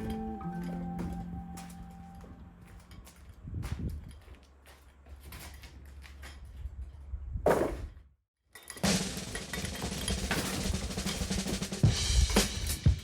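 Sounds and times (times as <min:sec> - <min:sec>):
background music with drum beat: 0:08.8 - 0:13.0.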